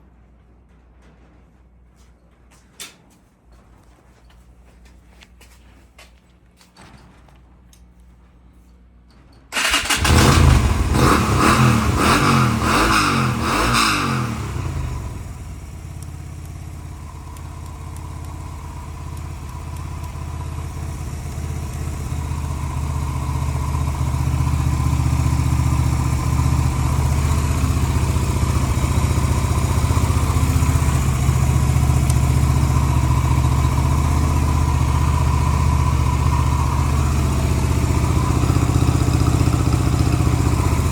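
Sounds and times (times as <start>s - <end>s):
motorcycle engine starting and idling: 9.2s - 40.9s.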